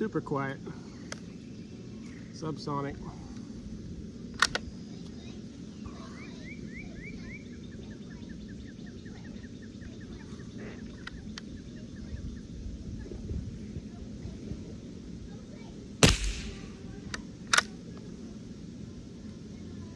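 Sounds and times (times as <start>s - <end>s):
rifle shot crack: 16.0s - 17.1s.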